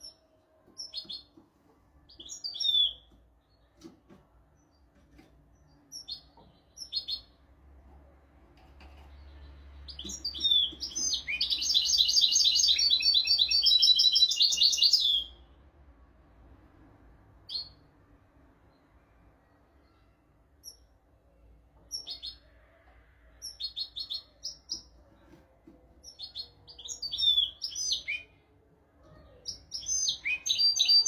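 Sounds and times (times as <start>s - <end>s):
bird trilled song: 9.0s - 15.4s, 26.0s - 28.4s, 29.3s - 31.0s.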